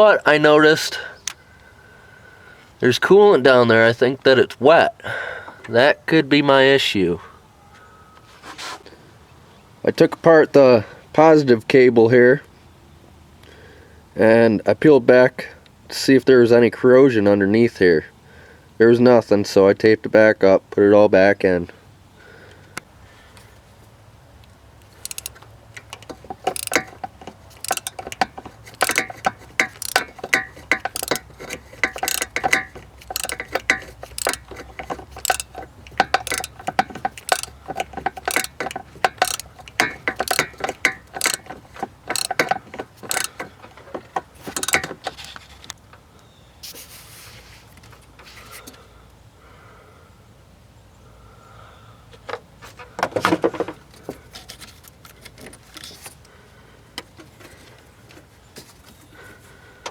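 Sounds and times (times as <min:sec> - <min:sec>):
ratchet wrench clicking: 0:24.8 - 0:43.7, 0:44.3 - 0:45.4.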